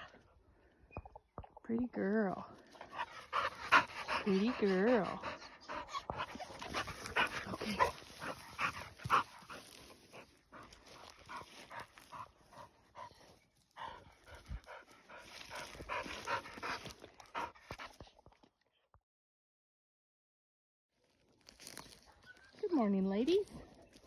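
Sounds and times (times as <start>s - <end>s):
dog panting: 2.6s - 18.2s.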